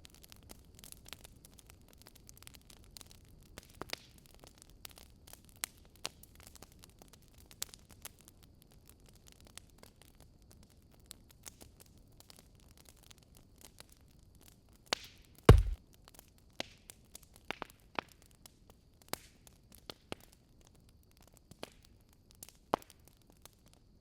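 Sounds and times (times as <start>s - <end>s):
loud fire pops: 15.5s - 15.8s
wood fire crackling: 15.5s - 15.8s.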